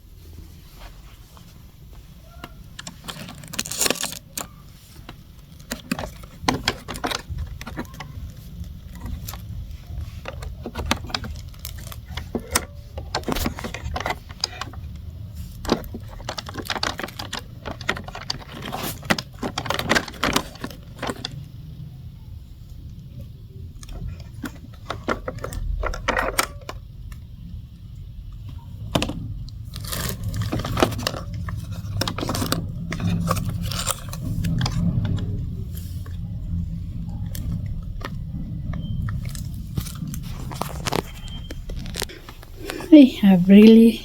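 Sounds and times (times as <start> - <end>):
clicking and rattling: 2.4 - 21.5, 28.9 - 42.9.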